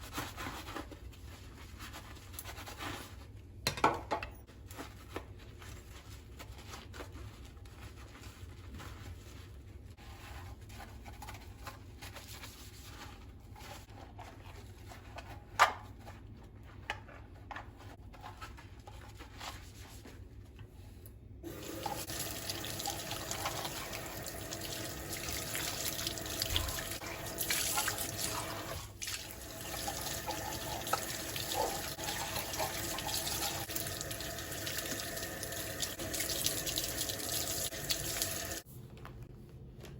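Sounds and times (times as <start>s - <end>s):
water running into a sink: 21.4s - 38.6s.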